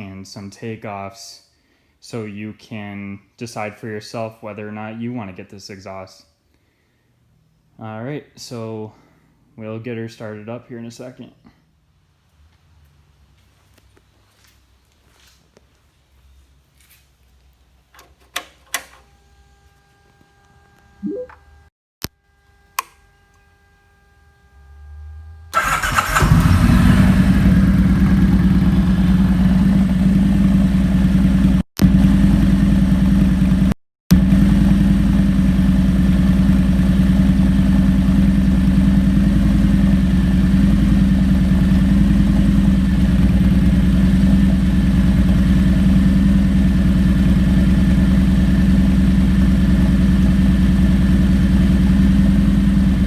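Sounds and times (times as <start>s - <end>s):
ignition click: 25.6s - 26.6s
engine cranking: 25.6s - 29.9s
motorcycle engine idling: 25.6s - 53.0s.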